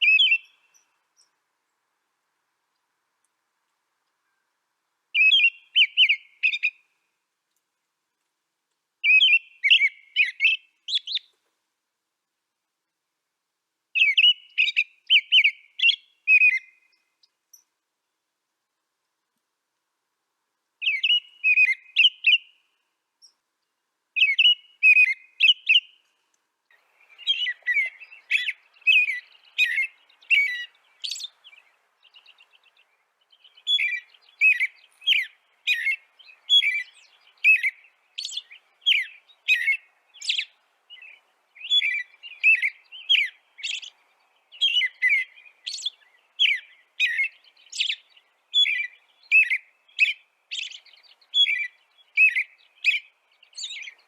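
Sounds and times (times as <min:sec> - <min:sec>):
bird chirping: 0:00.0 - 0:01.4, 0:04.2 - 0:07.0, 0:09.0 - 0:11.4, 0:13.9 - 0:17.8, 0:20.8 - 0:23.5, 0:24.2 - 0:54.0.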